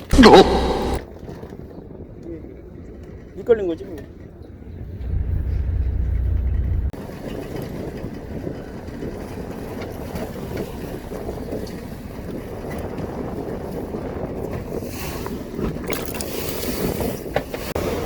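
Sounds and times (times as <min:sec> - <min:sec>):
boat engine rumble: 0:00.0 - 0:01.0, 0:03.3 - 0:18.0
water wash: 0:15.4 - 0:18.0.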